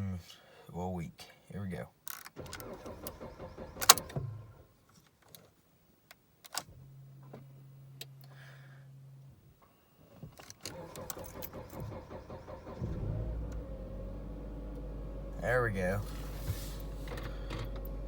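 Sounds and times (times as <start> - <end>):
car engine starting: 2.4 - 4.8, 10.6 - 18.0
keys jangling in ignition: 10.4 - 12.0.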